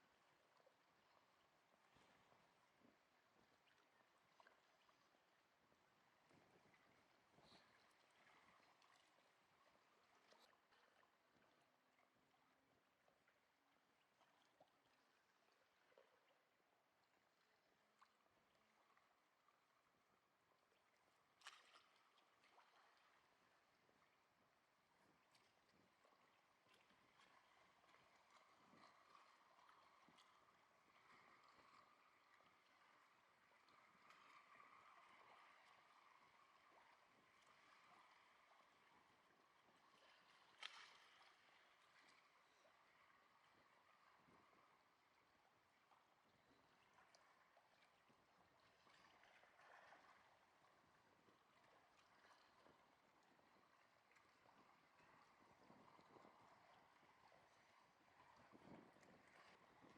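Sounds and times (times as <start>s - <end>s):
faint lake water lapping: 0.0s - 59.9s
small water splashes: 20.8s - 24.2s, 24.9s - 45.2s.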